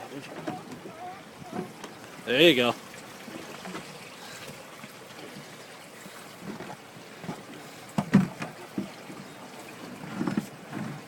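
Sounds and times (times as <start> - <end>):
sea water: 0.0 - 11.0
wind: 0.0 - 11.0.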